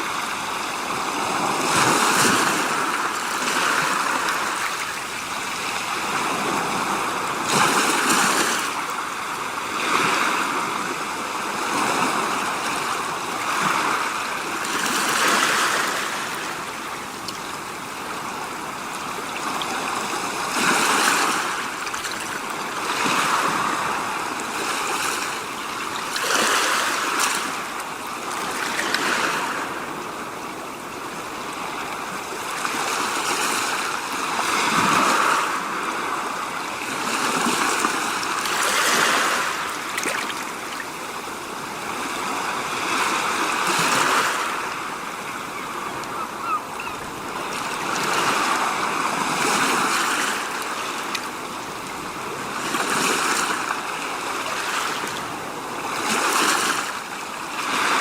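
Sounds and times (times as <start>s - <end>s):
waves washing in: 0.0s - 58.0s.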